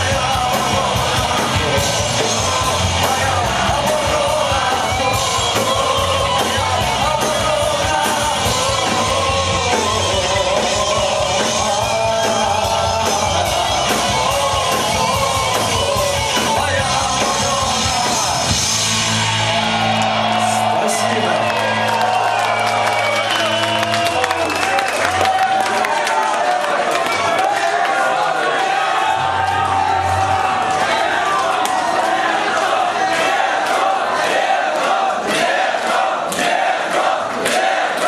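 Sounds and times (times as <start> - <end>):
punk rock band playing: 0.0 - 26.2, 28.6 - 32.8.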